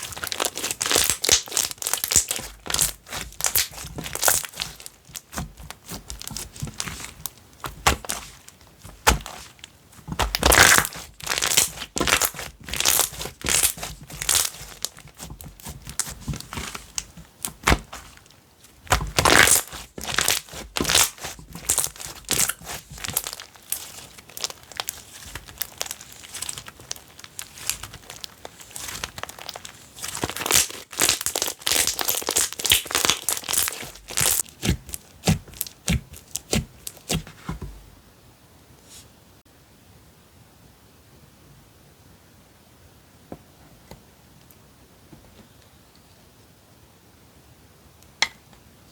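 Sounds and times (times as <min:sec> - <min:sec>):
slime squished by hand: 0:00.0 - 0:37.6.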